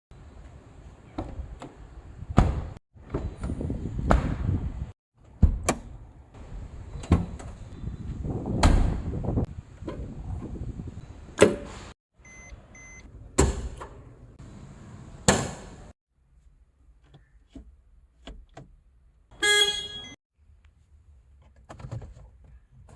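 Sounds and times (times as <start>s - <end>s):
car door thudding shut: 2.4s - 2.8s, 8.6s - 9.1s.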